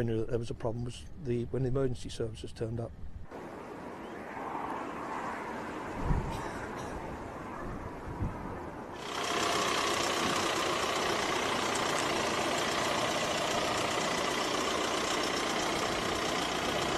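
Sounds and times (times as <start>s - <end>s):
engine running steadily: 9.0s - 16.9s.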